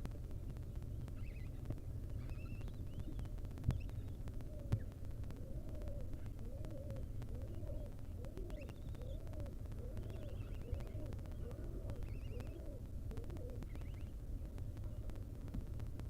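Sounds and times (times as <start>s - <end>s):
steady low hum: 0.0s - 16.0s
low bird calls: 0.5s - 14.2s
faint high bird chirps: 1.2s - 4.9s, 6.7s - 14.2s.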